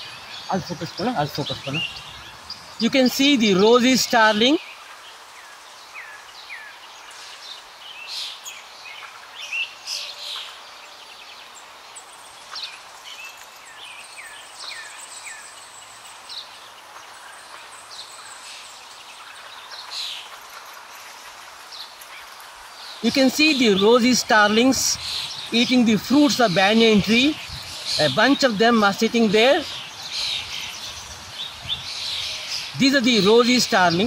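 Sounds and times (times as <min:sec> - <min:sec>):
birds chirping and whistling: 0:00.0 - 0:04.8, 0:12.2 - 0:20.3, 0:21.7 - 0:34.0
steady outdoor hiss: 0:00.0 - 0:34.0.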